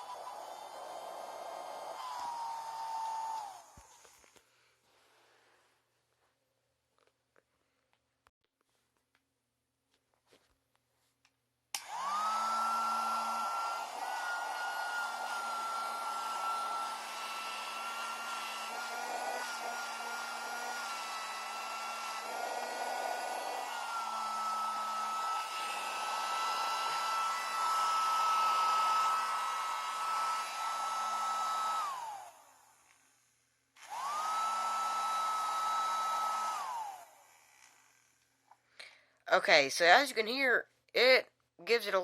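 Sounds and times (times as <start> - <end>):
handheld vacuum motor whining: 0.0 - 4.5, 11.8 - 38.9.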